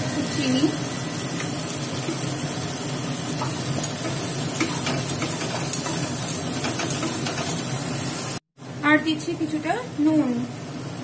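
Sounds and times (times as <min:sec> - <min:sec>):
paste sizzling in hot oil: 0:00.0 - 0:08.4
wooden spatula scraping wok: 0:03.3 - 0:07.8.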